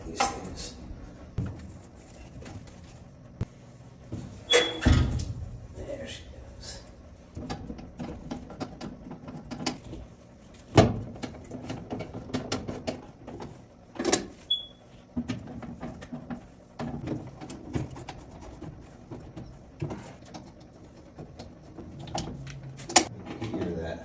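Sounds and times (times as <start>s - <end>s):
brief squeak: 4.5s - 4.9s.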